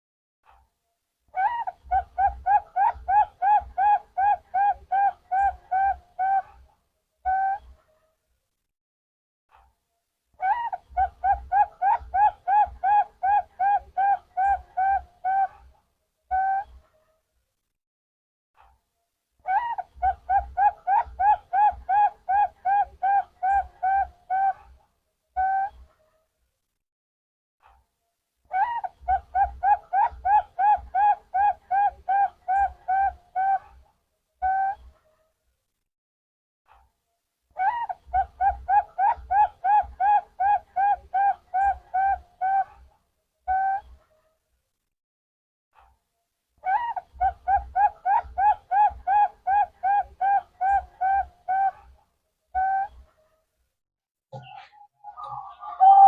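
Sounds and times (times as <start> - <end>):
dove cooing: 1.4 - 6.5, 10.4 - 15.6, 19.5 - 24.6, 28.6 - 33.7, 37.6 - 42.8, 46.7 - 51.8, 54.4 - 56.0.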